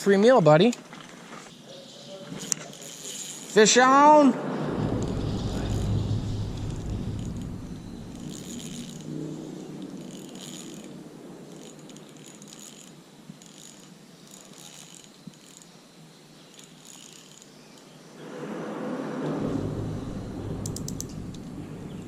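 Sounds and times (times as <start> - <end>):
fishing reel ratcheting: 2.4 - 4.2, 4.9 - 18.0.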